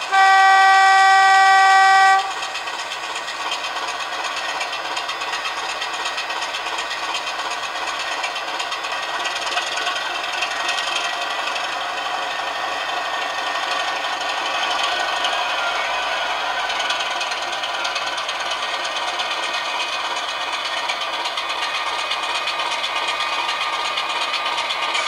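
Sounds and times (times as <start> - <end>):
two-tone locomotive horn: 0.0 - 2.6
diesel engine running: 1.6 - 25.0.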